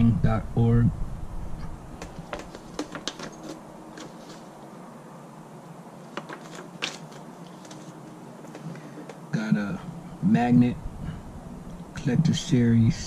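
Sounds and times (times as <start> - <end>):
small items clicking: 2.0 - 4.4, 6.1 - 9.2
paper rustling: 2.0 - 4.7, 6.0 - 9.2.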